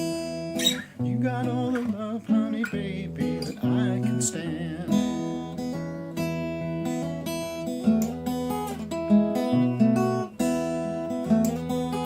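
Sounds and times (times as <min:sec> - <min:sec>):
fingerstyle acoustic guitar: 0:00.0 - 0:12.0
person singing: 0:00.6 - 0:05.6.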